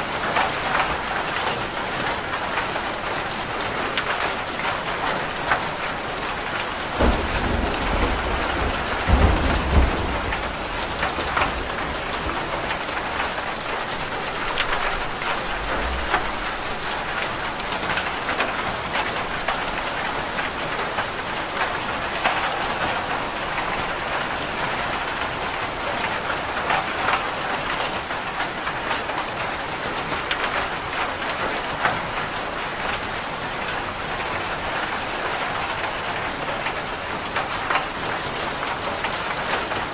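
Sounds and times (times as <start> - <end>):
rain on a roof: 0.0 - 39.9
raindrops ticking: 0.2 - 29.4
thunder rumbling: 6.4 - 23.9.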